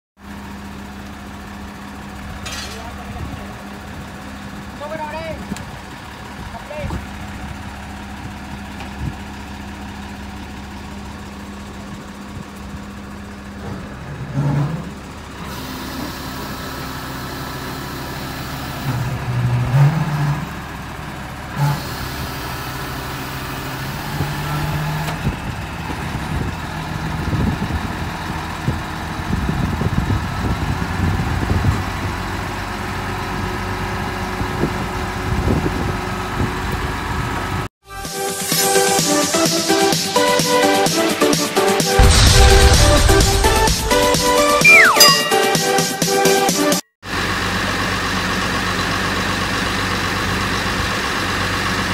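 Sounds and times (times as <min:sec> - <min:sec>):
diesel truck engine revving: 0:13.4 - 0:37.7.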